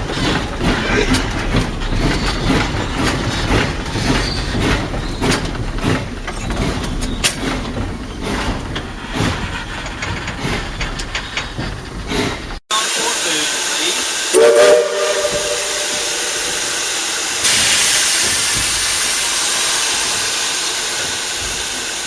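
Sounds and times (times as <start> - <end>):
knocks and clanks of running gear: 0.0 - 12.6
steam locomotive running: 0.0 - 22.0.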